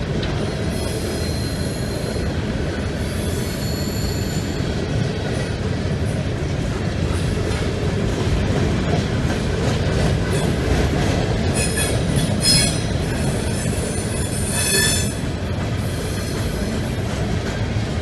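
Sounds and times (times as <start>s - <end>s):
train wheels rumbling on rails: 0.0s - 18.0s
high-pitched wheel squeal: 0.8s - 2.2s, 11.6s - 12.9s, 13.5s - 15.2s.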